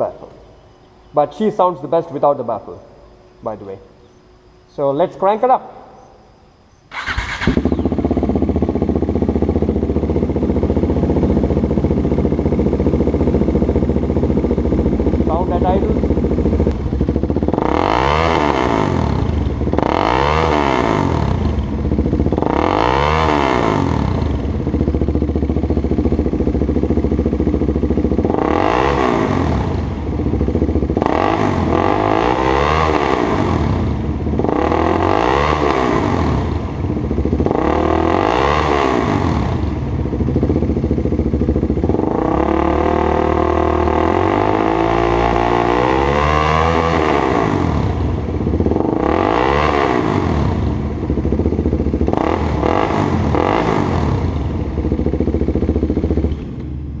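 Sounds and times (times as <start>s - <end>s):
motorcycle engine revving: 3.2s - 57.0s.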